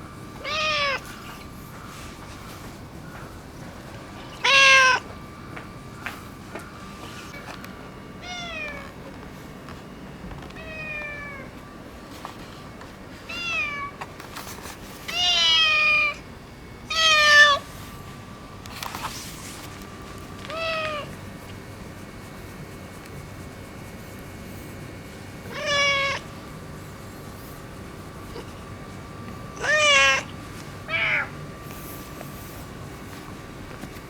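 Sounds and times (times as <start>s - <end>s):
cat meowing: 0.4s - 1.1s, 4.2s - 5.0s, 8.2s - 8.9s, 10.6s - 11.5s, 13.3s - 14.0s, 15.1s - 16.2s, 16.9s - 17.7s, 20.5s - 21.1s, 25.5s - 26.3s, 29.6s - 30.3s, 30.9s - 31.3s.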